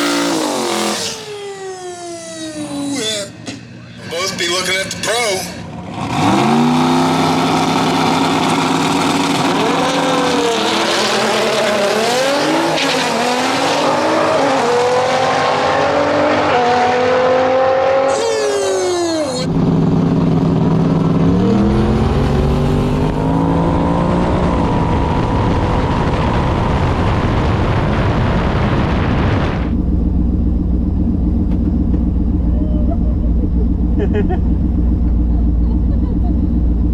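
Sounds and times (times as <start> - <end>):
drag race cars at full throttle: 0.0 - 36.9.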